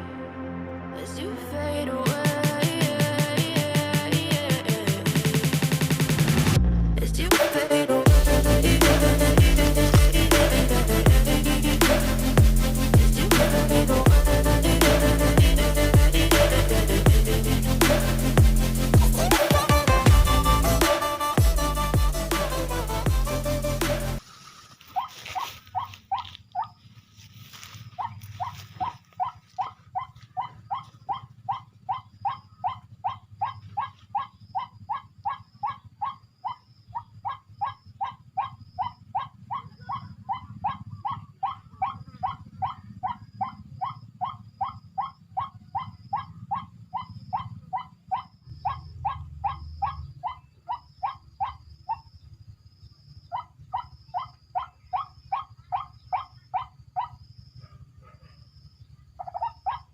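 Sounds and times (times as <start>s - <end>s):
bird call repeated rapidly: 59.2s - 59.9s.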